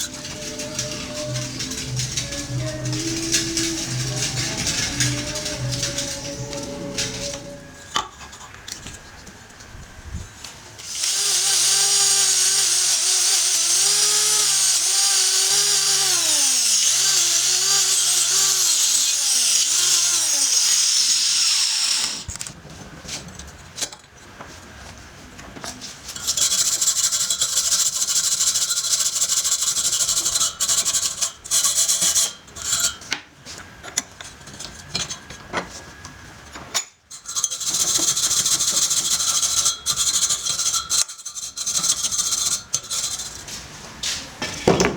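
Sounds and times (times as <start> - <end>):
power tool motor running: 0.0 - 8.1, 10.8 - 22.4
harsh high scraping: 0.0 - 9.4.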